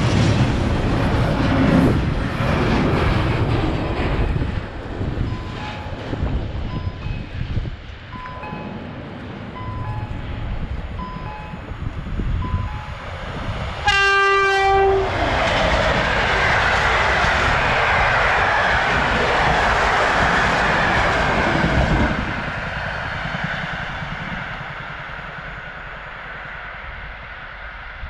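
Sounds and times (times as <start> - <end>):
train wheels rumbling on rail: 0.0 - 28.0
crossing signal two-tone chime: 5.3 - 6.0, 6.7 - 7.4, 8.2 - 8.8, 9.6 - 10.3, 11.0 - 11.8, 12.4 - 13.0
train horn blast: 13.8 - 15.3.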